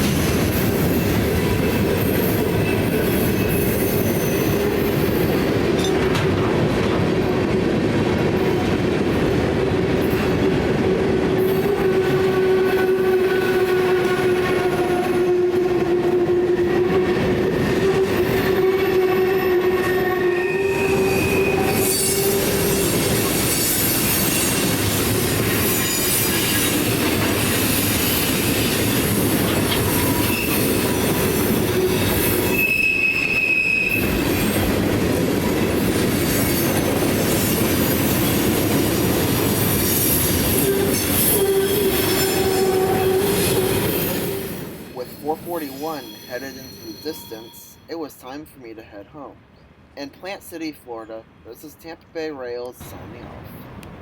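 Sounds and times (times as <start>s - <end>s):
rolling train cars clattering: 0.0s - 18.9s, 20.8s - 47.6s
train wheels squealing: 0.8s - 5.3s, 17.6s - 34.6s, 39.6s - 47.9s.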